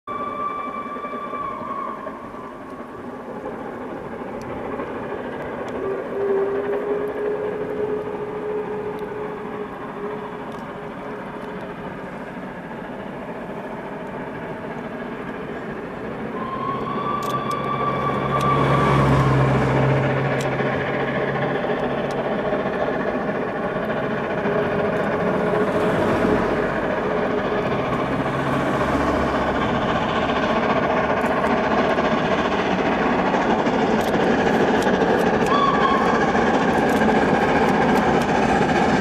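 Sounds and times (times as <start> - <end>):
long held high tones: 0.0 - 11.6, 15.2 - 21.8, 35.3 - 37.6
train rushing noise: 0.0 - 39.0.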